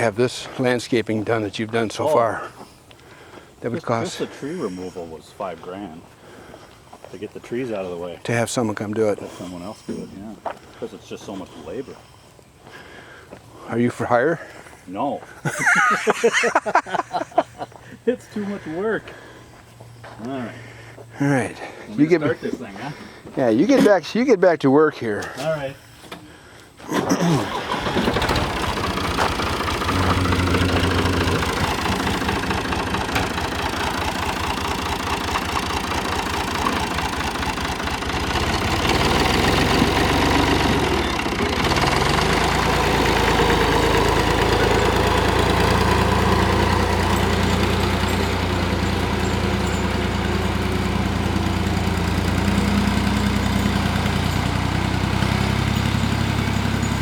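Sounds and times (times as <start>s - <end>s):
tractor engine starting and running: 0.0s - 6.0s, 26.1s - 57.0s.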